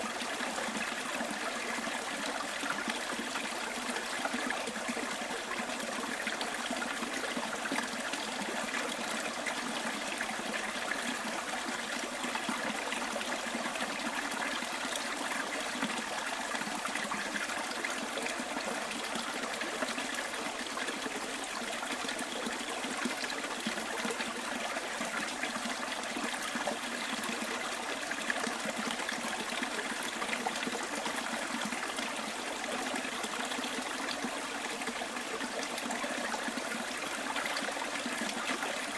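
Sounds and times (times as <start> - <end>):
stream flowing over stones: 0.0 - 38.9.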